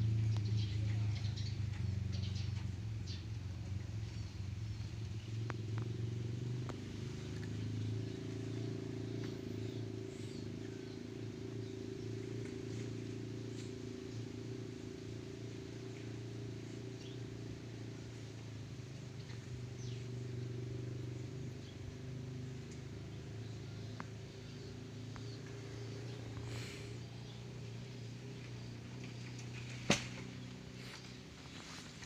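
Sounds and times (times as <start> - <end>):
low machine hum: 0.0 - 32.0
small birds chirping: 0.0 - 32.0.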